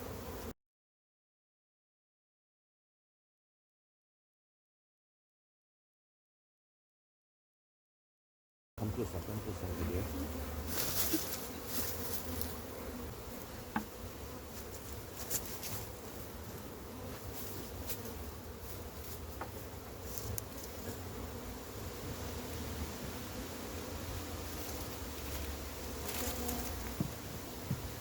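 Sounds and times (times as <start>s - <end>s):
honey bees buzzing: 0.0s - 0.6s, 8.8s - 28.0s.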